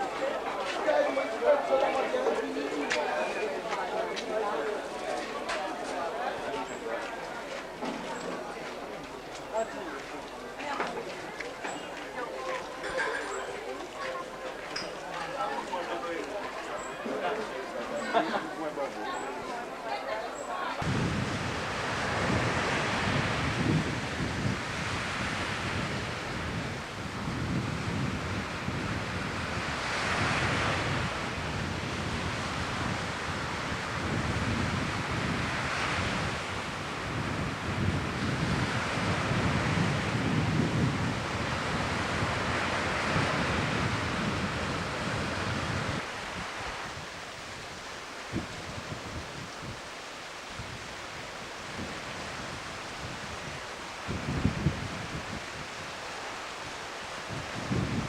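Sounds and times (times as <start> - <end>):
sea waves washing in: 0.0 - 58.0
wind buffeting microphone: 20.8 - 58.0.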